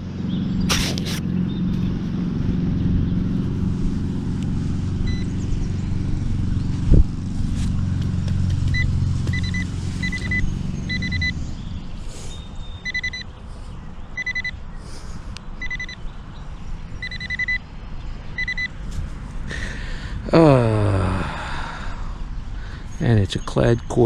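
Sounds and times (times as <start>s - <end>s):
low engine rumble: 0.0s - 24.0s
metal detector beeping: 5.0s - 5.4s, 8.7s - 11.4s, 12.8s - 13.3s, 14.1s - 14.6s, 15.6s - 16.0s, 17.0s - 17.7s, 18.3s - 18.8s.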